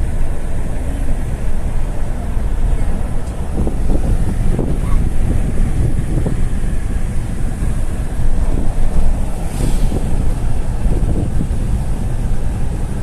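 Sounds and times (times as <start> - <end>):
vehicle rumble: 0.0 - 13.0
wind buffeting microphone: 0.0 - 13.0
brief hiss: 9.4 - 10.4.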